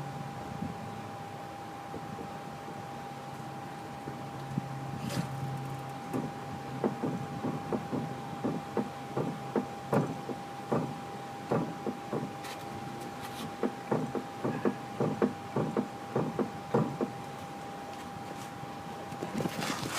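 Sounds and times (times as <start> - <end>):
car knocking when turning: 6.1 - 12.4, 13.5 - 17.2.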